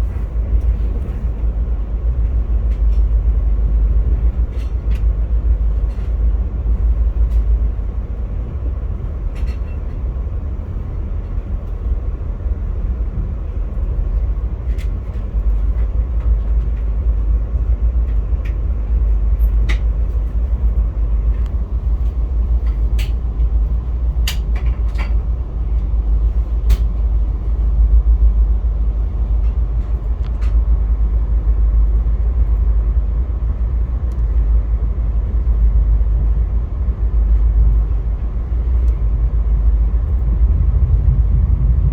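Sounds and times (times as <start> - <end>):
train rumbling on rails: 0.0 - 41.9.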